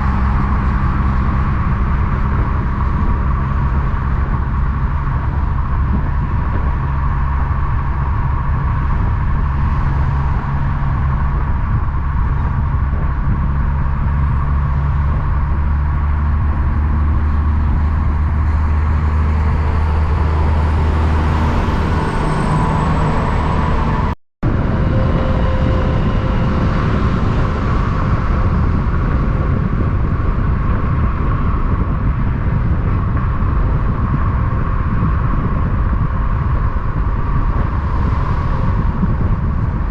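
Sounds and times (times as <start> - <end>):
diesel truck engine drone: 0.0 - 39.9
passing traffic noise: 0.0 - 39.9
high falling whine: 17.0 - 30.4.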